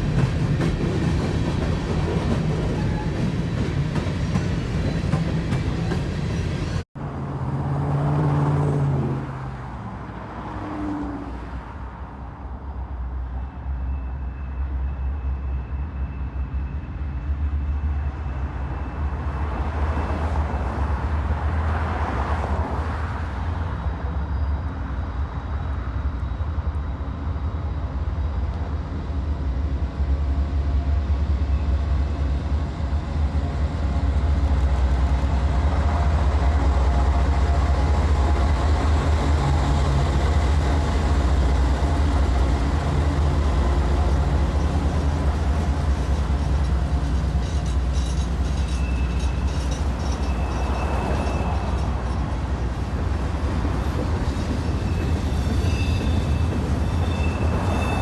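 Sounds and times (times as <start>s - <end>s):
train rumbling by: 0.0s - 58.0s
faint high squeal: 13.4s - 19.3s, 46.2s - 51.9s, 53.8s - 58.0s.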